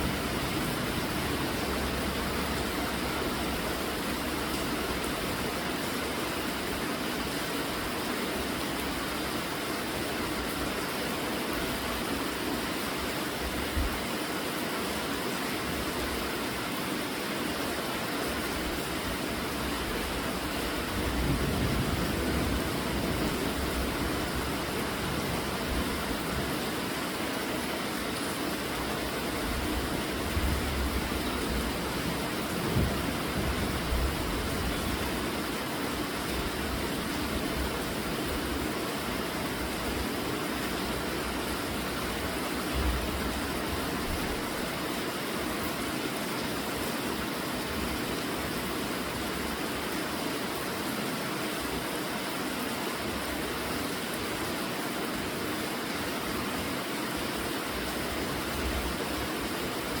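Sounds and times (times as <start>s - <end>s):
steady rainfall: 0.0s - 60.0s.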